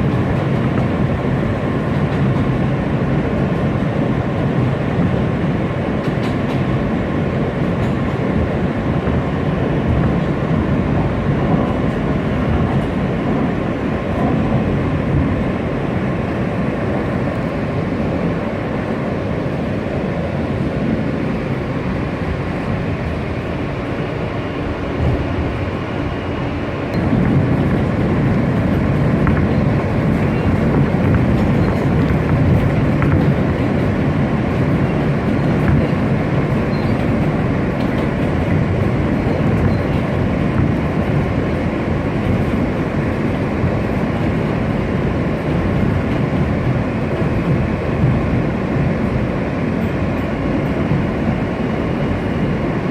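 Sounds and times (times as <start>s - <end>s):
subway train rumble: 0.0s - 52.9s.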